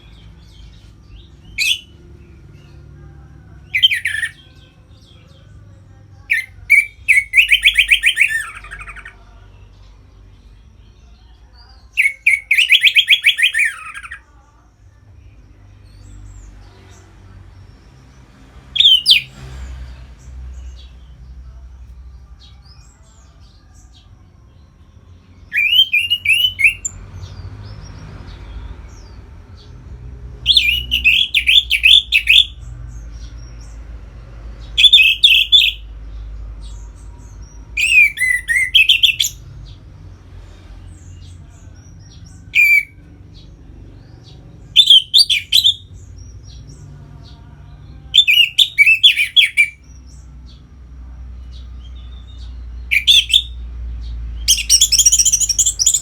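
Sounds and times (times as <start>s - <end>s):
thrush singing: 0.0s - 10.6s, 11.9s - 14.3s, 21.8s - 32.7s, 33.8s - 50.5s, 52.8s - 53.6s, 54.3s - 56.0s.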